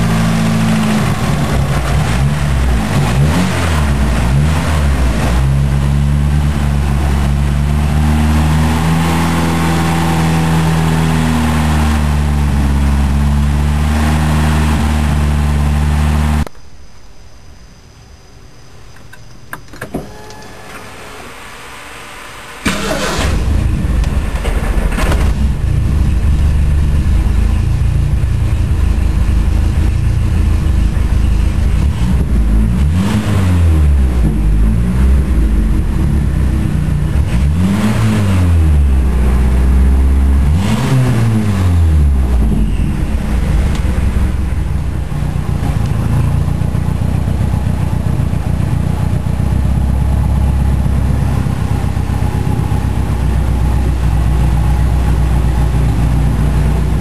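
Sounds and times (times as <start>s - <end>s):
car engine running: 0.0s - 16.5s, 22.6s - 57.0s
clicks: 18.9s - 20.9s.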